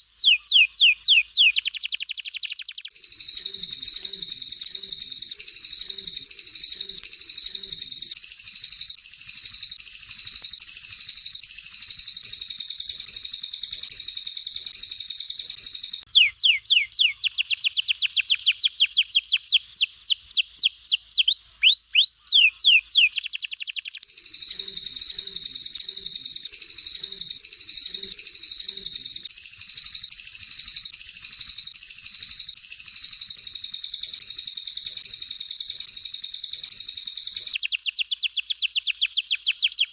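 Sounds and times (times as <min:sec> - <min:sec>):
downward-sweeping bird whistles: 0:00.0 - 0:39.9
songbird chattering trill: 0:00.0 - 0:39.9.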